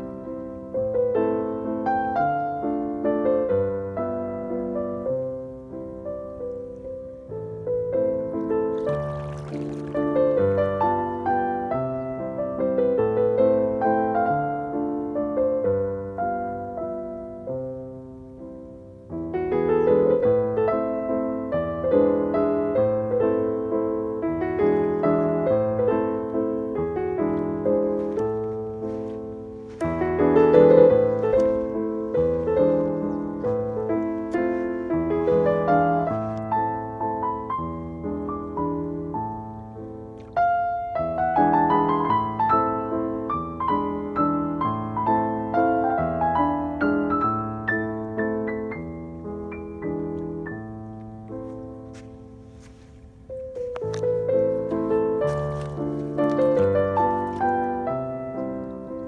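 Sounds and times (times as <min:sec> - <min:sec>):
gentle piano music: 0:00.0 - 0:59.0.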